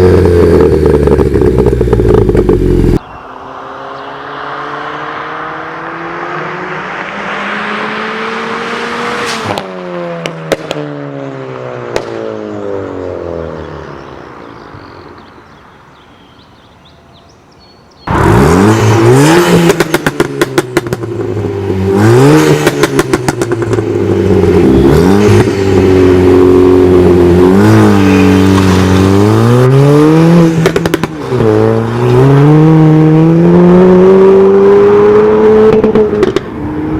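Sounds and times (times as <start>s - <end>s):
car engine accelerating hard: 0.0s - 14.2s, 18.1s - 36.9s
exhaust pops and crackles: 0.5s - 3.0s, 11.9s - 12.2s, 30.6s - 31.5s, 35.7s - 36.5s.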